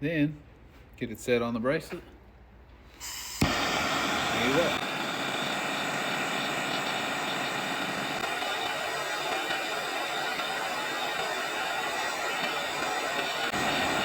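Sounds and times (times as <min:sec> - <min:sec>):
gas torch flame hissing: 0:03.0 - 0:14.0.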